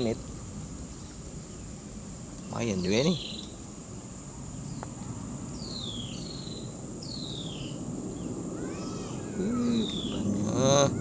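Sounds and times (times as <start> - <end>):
steady background noise: 0.0 - 11.0
low bird call: 8.5 - 11.0
bird whistling call: 8.6 - 10.2.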